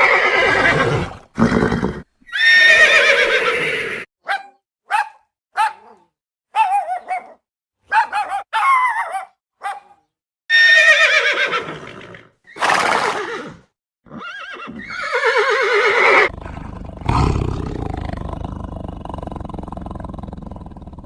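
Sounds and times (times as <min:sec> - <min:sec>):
horse snorting: 0:00.0 - 0:02.1, 0:15.9 - 0:20.9
horse whinnying: 0:00.0 - 0:04.1, 0:10.5 - 0:16.3.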